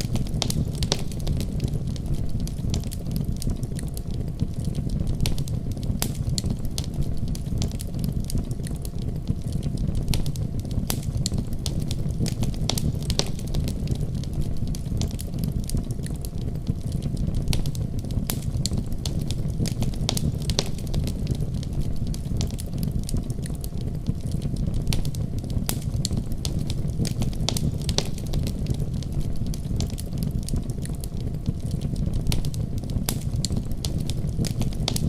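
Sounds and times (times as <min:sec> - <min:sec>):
fireplace fire crackling: 0:00.0 - 0:35.0
snowstorm low rumble: 0:16.7 - 0:35.0.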